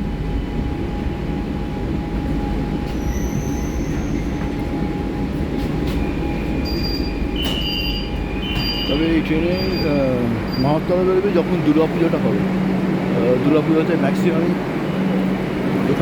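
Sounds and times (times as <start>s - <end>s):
train rumbling on track: 0.0s - 16.0s
wheels squealing: 6.1s - 10.9s.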